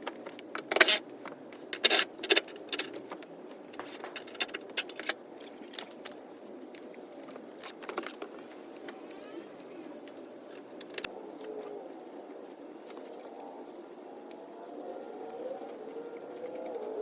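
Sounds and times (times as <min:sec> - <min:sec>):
metal tools clinking and scraping: 0:00.6 - 0:01.0, 0:01.8 - 0:03.1, 0:03.8 - 0:05.2.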